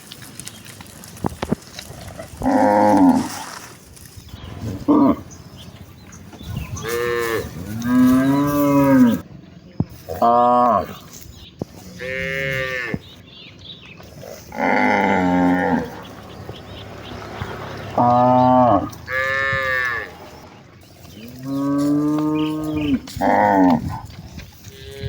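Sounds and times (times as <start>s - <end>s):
cattle mooing: 2.4s - 3.4s, 6.8s - 9.2s, 11.9s - 13.0s, 14.2s - 25.0s.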